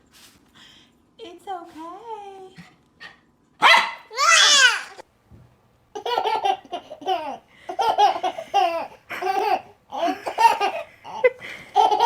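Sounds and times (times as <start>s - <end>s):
baby laughing: 6.0s - 12.0s.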